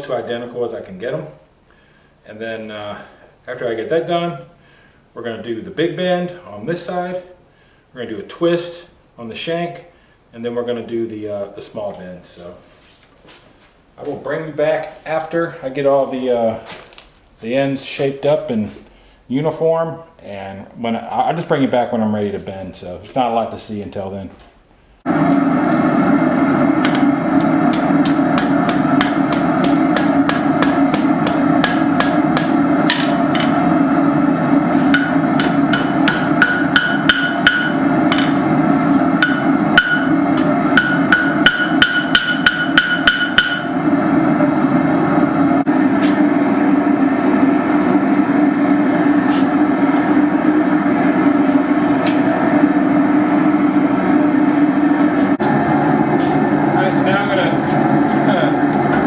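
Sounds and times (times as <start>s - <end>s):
hammer ringing on anvil: 34.9s - 38.4s, 39.2s - 43.8s.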